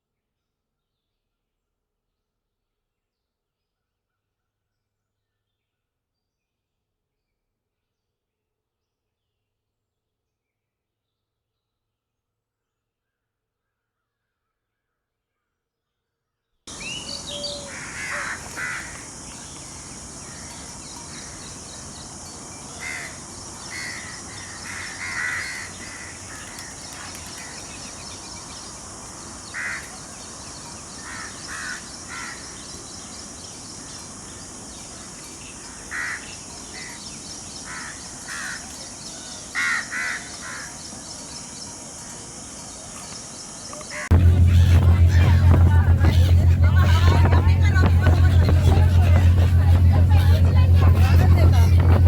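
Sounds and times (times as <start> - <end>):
short bird calls: 16.7 - 30.6
steady high hiss: 16.7 - 38.2.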